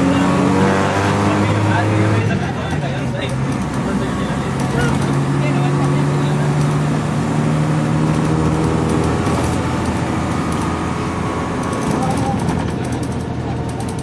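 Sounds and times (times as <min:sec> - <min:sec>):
bus engine running: 0:00.0 - 0:14.0
road noise: 0:00.0 - 0:14.0
small rattles: 0:11.6 - 0:14.0.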